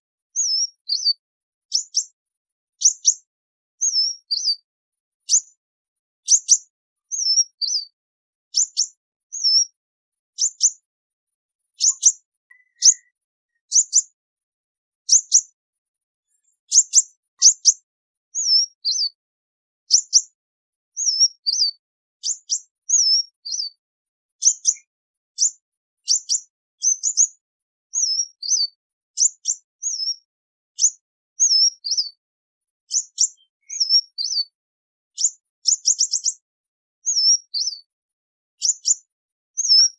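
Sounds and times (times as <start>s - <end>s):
sunbird chirping: 0.4s - 2.1s, 3.8s - 5.4s, 6.3s - 8.0s, 8.6s - 9.8s, 11.8s - 14.1s, 18.4s - 19.2s, 21.0s - 23.8s, 28.0s - 28.8s, 32.9s - 34.6s, 37.1s - 37.9s.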